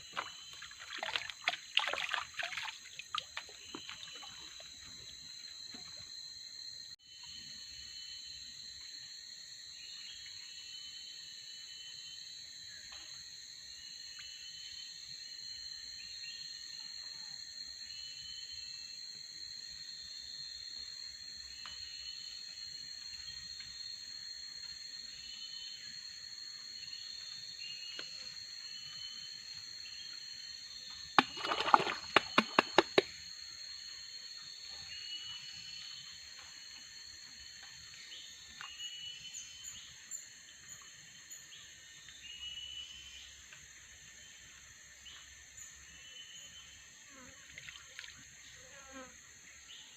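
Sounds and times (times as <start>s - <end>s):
insect chirping calls: 0.0s - 49.9s
insect drone: 0.0s - 49.9s.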